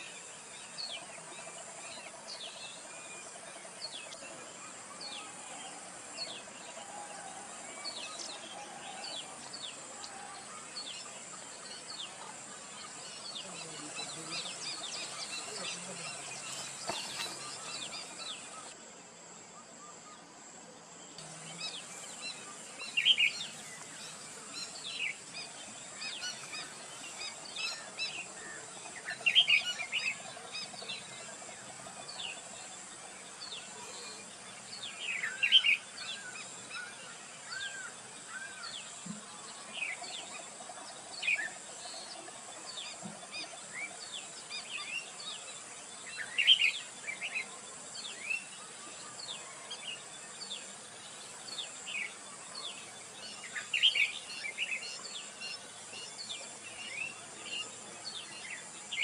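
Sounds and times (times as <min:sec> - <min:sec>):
birds chirping and calling: 0:08.0 - 0:18.8, 0:21.2 - 0:32.6.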